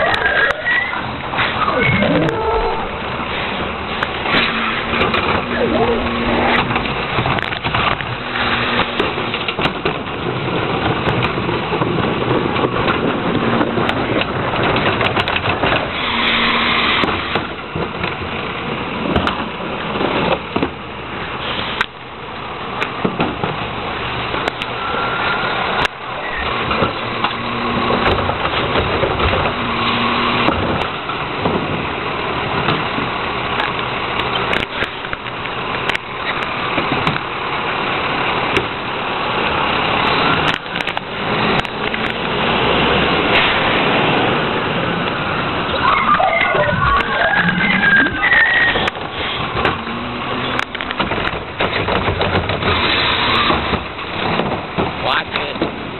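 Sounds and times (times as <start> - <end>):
garbage truck engine running: 0.0 - 55.9
short low tones: 1.6 - 7.2.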